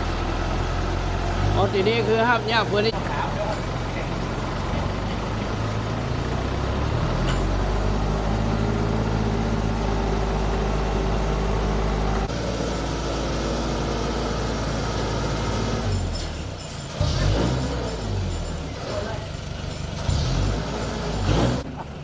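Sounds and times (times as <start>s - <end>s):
pickup truck engine idling: 0.0s - 22.0s.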